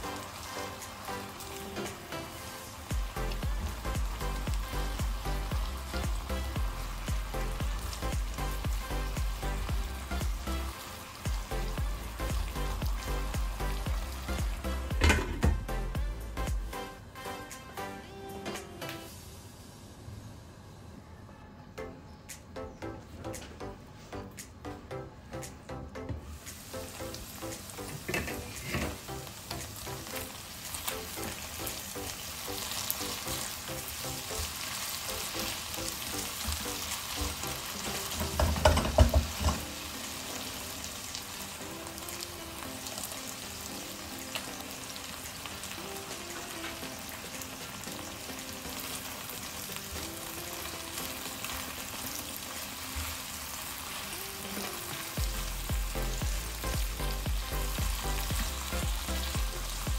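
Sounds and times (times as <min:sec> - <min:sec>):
chicken sizzling in oil: 0:00.0 - 0:16.9, 0:26.3 - 0:59.9.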